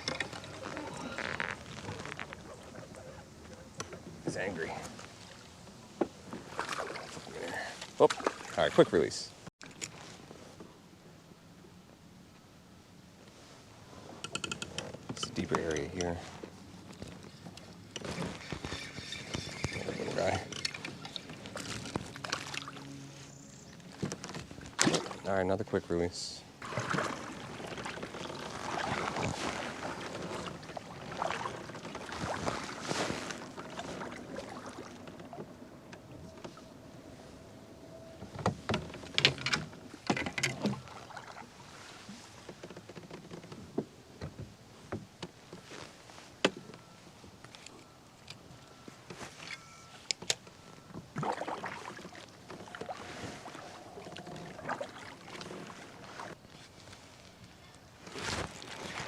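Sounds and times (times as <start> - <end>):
water splashing around kayak: 0.0 - 9.4, 15.6 - 37.4, 38.2 - 43.8, 51.0 - 57.2, 57.9 - 59.0.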